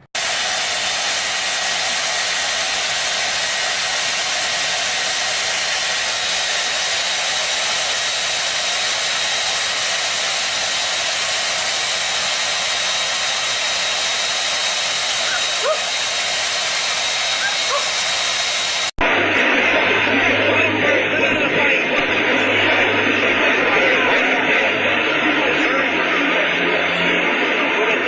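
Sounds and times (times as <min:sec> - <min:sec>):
rushing air hiss with whine: 0:00.2 - 0:18.9.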